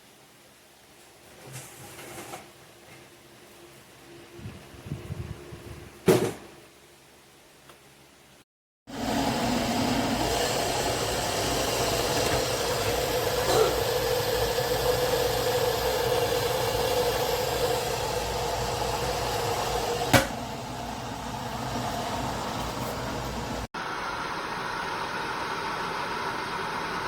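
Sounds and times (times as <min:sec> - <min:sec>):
electric kettle boiling: 0:08.9 - 0:23.9.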